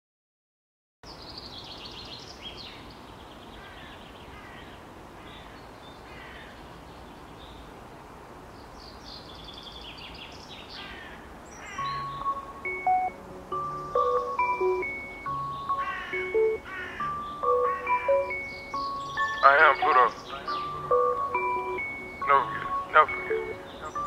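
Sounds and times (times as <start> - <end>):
outdoor background hiss: 1.0 - 24.0
birds singing: 1.1 - 7.7, 8.5 - 24.0
mallet percussion music: 11.8 - 24.0.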